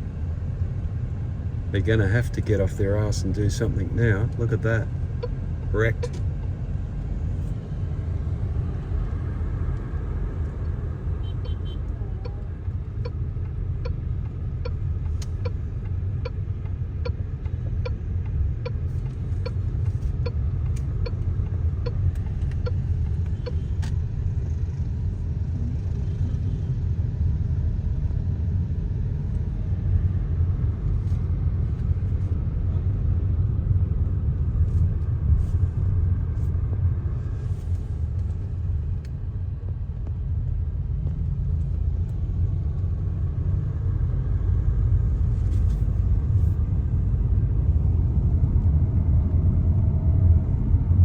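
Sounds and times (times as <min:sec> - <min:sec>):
vehicle engine and tyre rumble: 0:00.0 - 0:51.0
turn signal ticking: 0:02.6 - 0:25.1.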